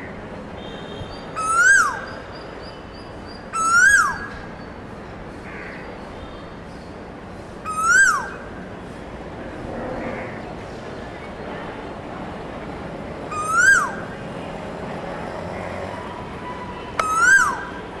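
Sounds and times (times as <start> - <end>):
bird whistle call: 17.0 - 17.7.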